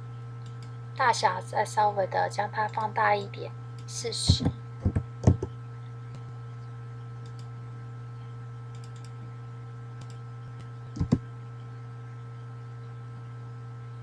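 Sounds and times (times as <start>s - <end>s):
electrical hum: 0.0s - 14.0s
keyboard and mouse clicks: 8.7s - 9.1s, 11.0s - 11.2s.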